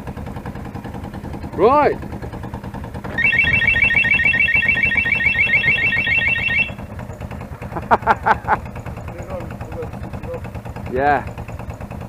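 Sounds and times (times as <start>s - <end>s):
engine idling: 0.0s - 12.0s
electronic alarm beeping: 3.2s - 6.8s.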